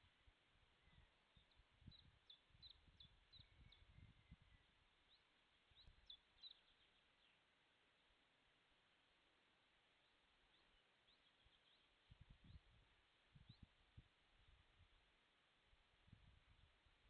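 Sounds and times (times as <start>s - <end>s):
faint high bird chirps: 0.7s - 7.5s, 10.0s - 14.0s.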